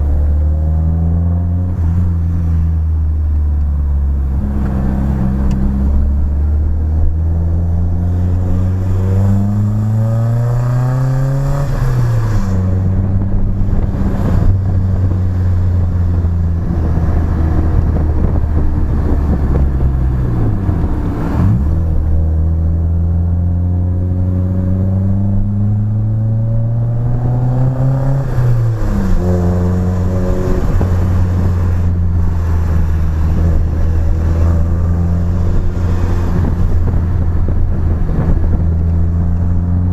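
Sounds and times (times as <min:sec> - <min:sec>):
car engine revving hard: 0:04.0 - 0:39.9.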